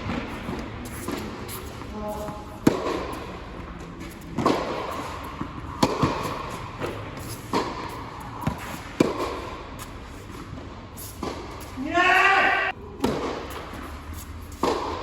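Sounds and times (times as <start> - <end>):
racquets hitting tennis ball: 0.0 - 12.4, 13.0 - 15.0
ball bouncing on court: 2.2 - 3.4, 4.0 - 9.5.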